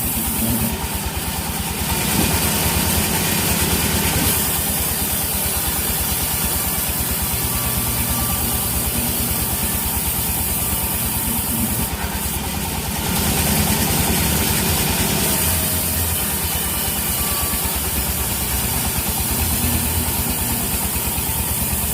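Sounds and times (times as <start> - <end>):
engine throbbing: 11.2 - 21.9.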